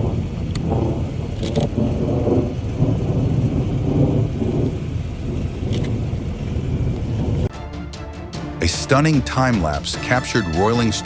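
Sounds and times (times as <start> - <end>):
thunder rumbling: 0.0 - 7.5
rain hissing: 0.0 - 11.0.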